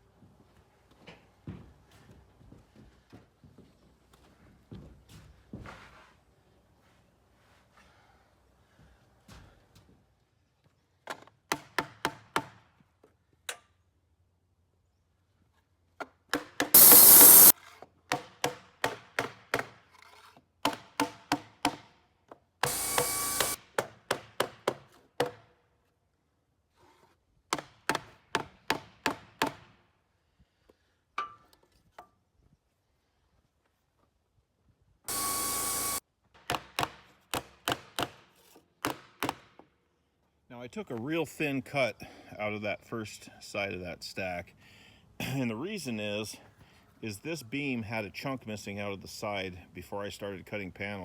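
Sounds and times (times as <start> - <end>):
loud bursts of hissing noise: 16.8 - 17.5, 22.8 - 23.6, 35.1 - 36.0.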